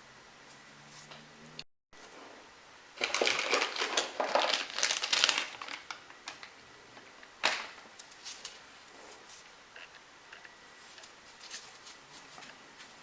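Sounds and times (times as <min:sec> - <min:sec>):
packaging crinkling and crumpling: 0:03.0 - 0:06.6.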